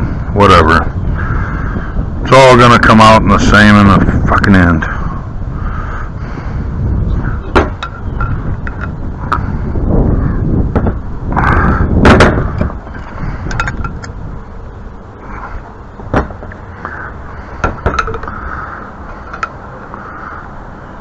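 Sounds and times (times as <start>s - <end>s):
wind buffeting microphone: 0.0s - 21.0s
pipe fittings clicking: 19.3s - 19.6s.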